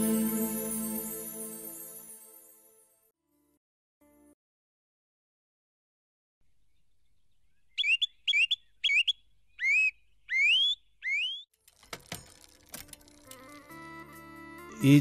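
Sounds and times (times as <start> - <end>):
bird whistling rising notes: 7.7 - 11.5.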